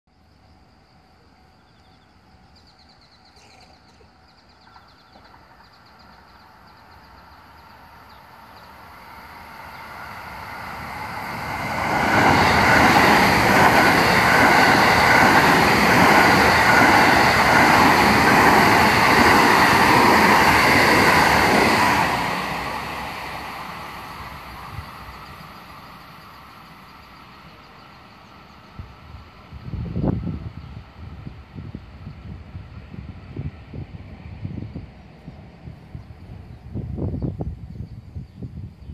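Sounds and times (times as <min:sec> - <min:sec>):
train passing by: 0:00.2 - 0:38.8.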